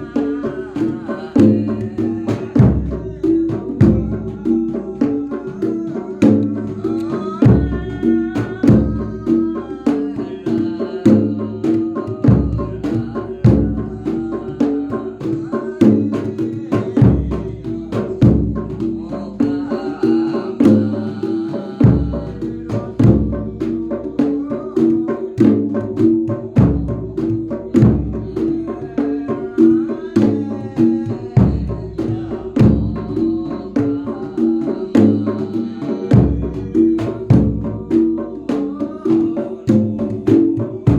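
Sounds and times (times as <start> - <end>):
quick sharp drum strokes: 0.0 - 40.9
bass drum booming: 31.2 - 33.2, 36.1 - 38.1.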